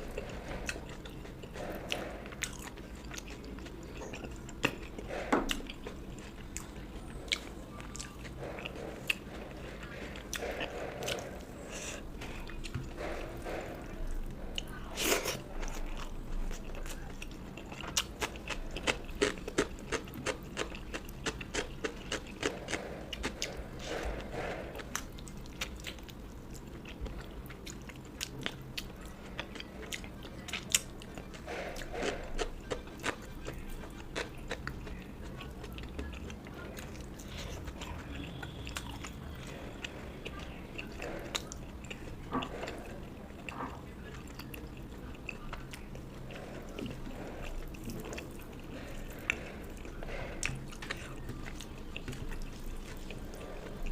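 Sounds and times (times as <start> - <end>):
person chewing food: 0.0 - 53.9.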